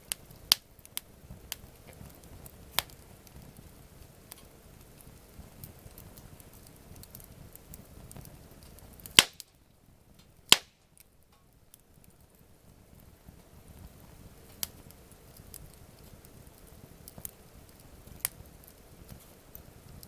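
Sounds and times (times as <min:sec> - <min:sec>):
campfire crackling: 0:00.0 - 0:20.0
loud sharp pops: 0:09.1 - 0:09.6, 0:10.5 - 0:10.9.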